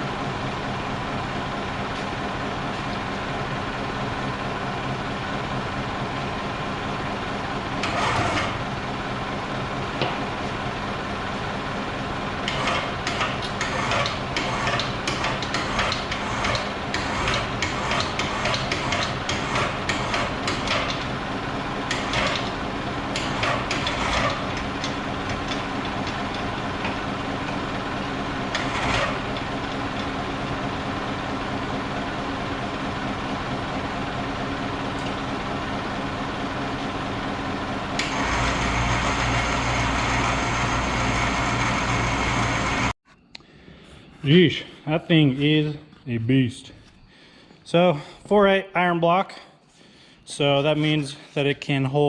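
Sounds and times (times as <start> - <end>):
engine idling: 0.0 - 42.9
metallic clanks and knocks: 12.4 - 21.1.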